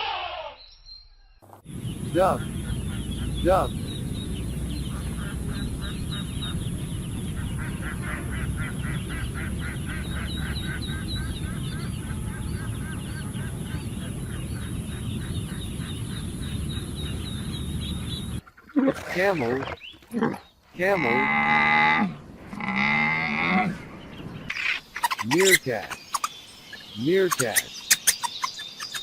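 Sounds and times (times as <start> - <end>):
ducks quacking: 1.8 - 3.8, 4.4 - 21.8, 24.5 - 26.4.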